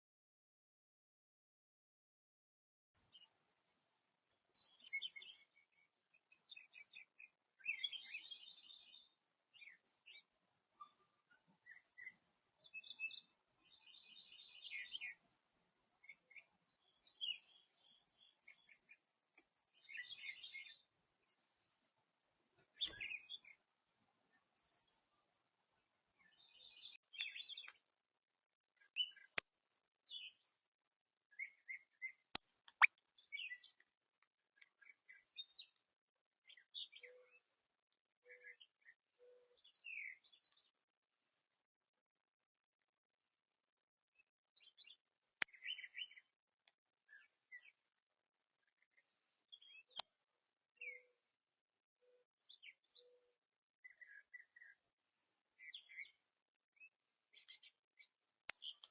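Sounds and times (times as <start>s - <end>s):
songbirds chirping: 3.0s - 27.8s, 28.8s - 29.4s, 30.1s - 30.6s, 31.3s - 33.9s, 34.6s - 35.8s, 36.4s - 37.5s, 38.3s - 41.4s, 44.6s - 46.3s, 52.4s - 56.2s, 58.5s - 58.9s.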